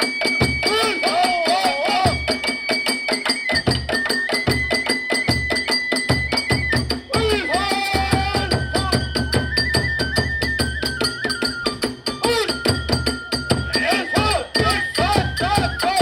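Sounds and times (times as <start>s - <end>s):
small hand cymbals: 0.0s - 16.0s
transverse flute high notes: 0.0s - 16.0s.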